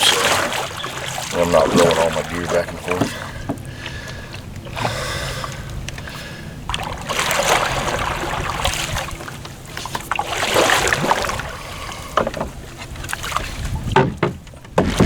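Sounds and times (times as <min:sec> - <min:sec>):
paddle swishing through water: 0:00.0 - 0:15.0
water splashing and dripping: 0:00.0 - 0:15.0.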